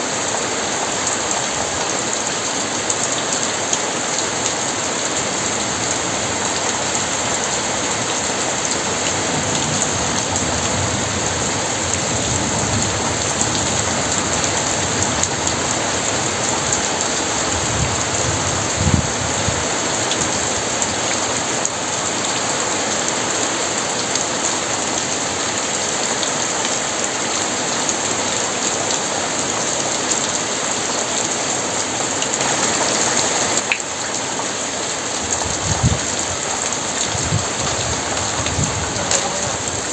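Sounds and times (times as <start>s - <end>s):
heavy rain pouring: 0.0s - 39.9s
low rumble of thunder: 8.9s - 19.8s, 35.3s - 39.9s.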